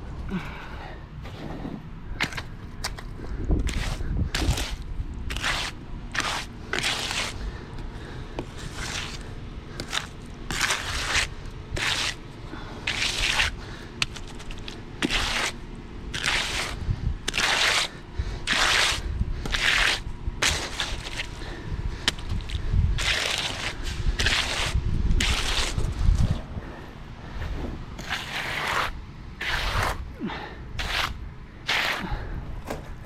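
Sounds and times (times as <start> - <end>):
hand tool scraping coarse material: 3.6 - 7.4, 8.4 - 12.2, 12.9 - 21.5, 22.1 - 26.4, 28.0 - 30.0, 30.8 - 32.2.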